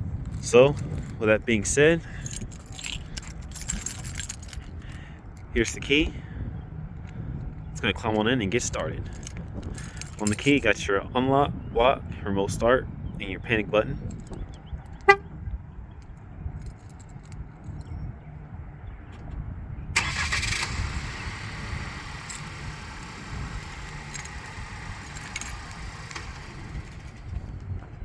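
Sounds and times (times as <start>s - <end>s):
key fob handling: 0.3s - 5.9s, 8.1s - 10.7s, 14.1s - 15.2s, 22.1s - 27.4s
car engine starting and idling: 20.0s - 27.6s.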